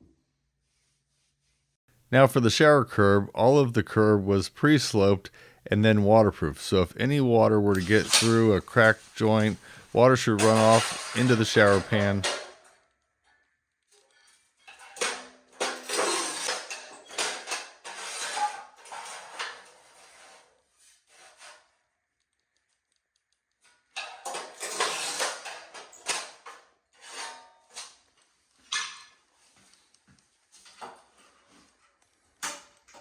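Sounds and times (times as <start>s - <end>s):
tiling tools scraping and clinking: 6.2s - 12.8s, 13.9s - 21.7s, 23.6s - 33.0s.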